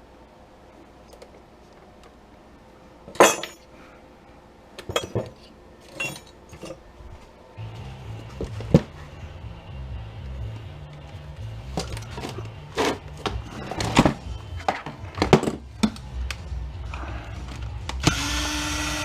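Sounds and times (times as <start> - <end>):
background music with bass line: 7.6 - 19.0.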